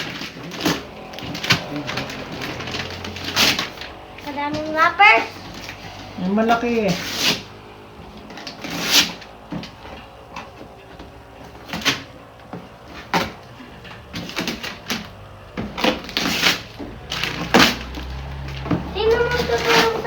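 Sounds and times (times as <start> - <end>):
wrapping paper tearing and crumpling: 0.0 - 4.3, 6.9 - 7.6, 8.3 - 9.3, 15.8 - 20.0.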